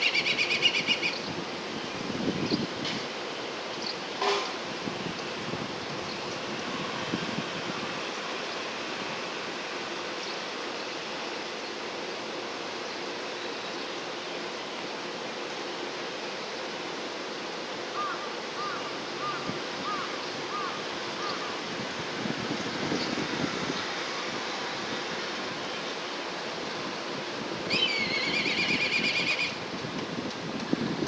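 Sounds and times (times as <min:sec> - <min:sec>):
bird of prey trilling whistle: 0:00.0 - 0:01.2, 0:27.7 - 0:29.6
steady rushing outdoor noise: 0:00.0 - 0:31.0.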